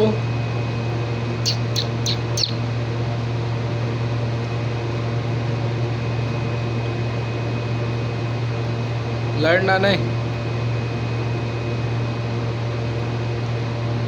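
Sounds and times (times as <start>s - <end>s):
electric appliance hum: 0.0s - 14.0s
parakeet squeak: 1.4s - 2.6s.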